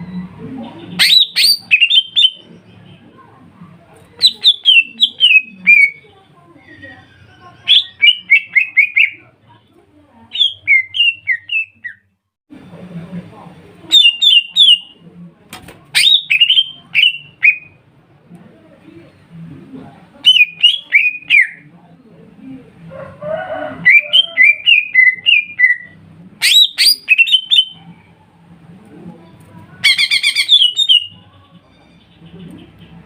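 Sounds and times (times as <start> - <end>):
bird trill: 29.8 - 32.8.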